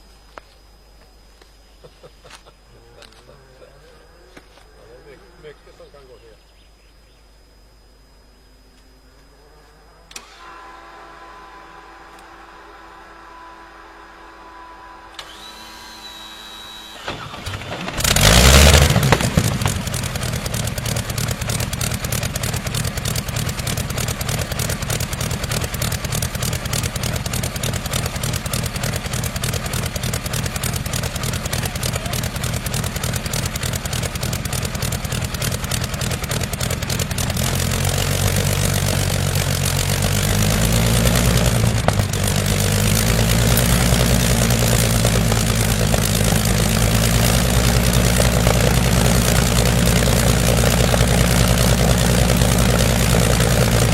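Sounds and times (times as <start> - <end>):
engine idling: 14.6 - 53.9.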